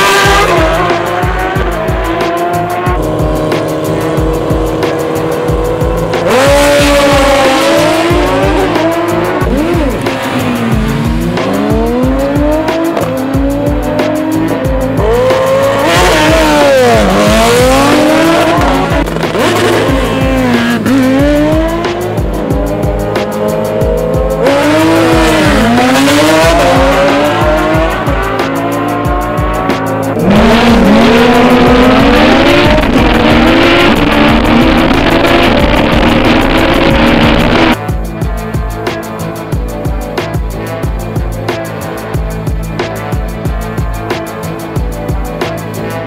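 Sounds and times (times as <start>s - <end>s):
loud music with heavy beat: 0.0s - 46.0s
racing engines revving: 0.0s - 46.0s.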